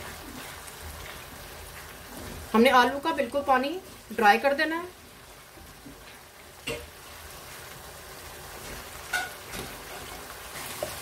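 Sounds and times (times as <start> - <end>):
wooden spatula stirring: 0.0 - 2.6, 8.5 - 11.0
food sizzling in a pan: 0.0 - 11.0.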